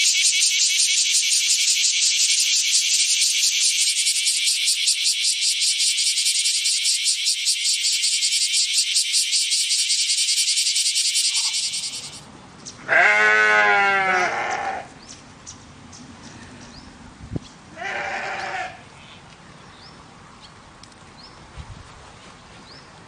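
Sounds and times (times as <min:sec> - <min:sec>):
insect buzzing in pulses: 0:00.0 - 0:12.2
sheep bleating: 0:12.9 - 0:14.9, 0:17.8 - 0:18.8.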